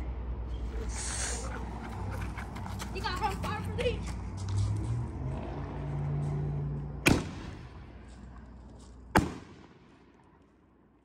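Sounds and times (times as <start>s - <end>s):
firework bangs: 7.0s - 7.8s, 9.1s - 10.0s
echo of firework: 7.0s - 8.0s, 9.1s - 10.3s.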